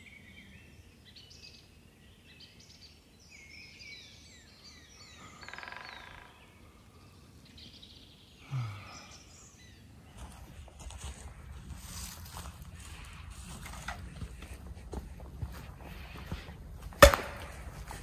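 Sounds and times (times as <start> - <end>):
songbirds chirping and trilling: 0.0 - 16.9
rustling noise: 10.2 - 18.0.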